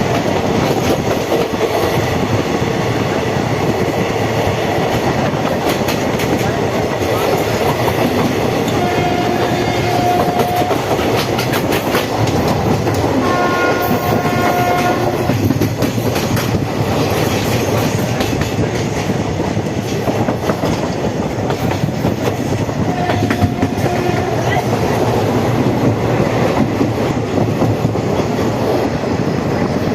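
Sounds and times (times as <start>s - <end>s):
train rumbling on rails: 0.0s - 29.9s
train horn: 8.7s - 11.2s, 13.1s - 15.4s, 22.8s - 24.8s.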